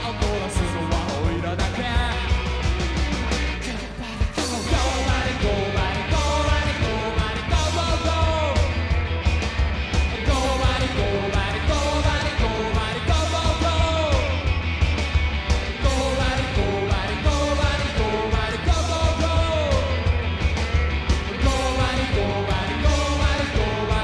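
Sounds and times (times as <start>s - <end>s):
fast drums: 0.0s - 24.0s
heavy bass: 0.0s - 24.0s
sung and shouted vocals: 3.6s - 8.9s, 10.2s - 14.6s, 15.7s - 20.4s, 21.3s - 24.0s.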